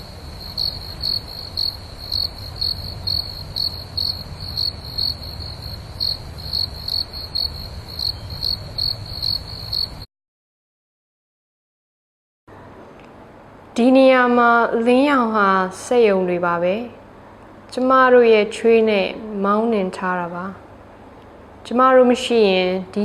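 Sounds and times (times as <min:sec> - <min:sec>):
cricket chirping: 0:00.0 - 0:10.1.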